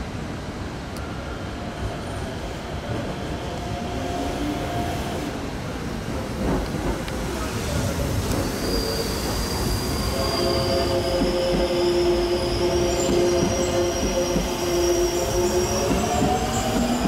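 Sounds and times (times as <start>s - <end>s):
electric train rolling rumble: 0.0s - 17.0s
high-pitched wheel squeal: 8.3s - 17.0s.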